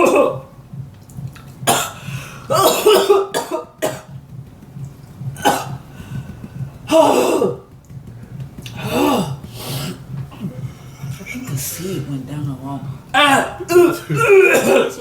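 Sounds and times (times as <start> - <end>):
person clearing throat: 1.7 - 4.1, 5.4 - 5.8, 6.9 - 7.7, 13.2 - 15.0
person coughing: 1.7 - 4.1, 5.4 - 5.8, 6.9 - 7.6, 13.2 - 15.0.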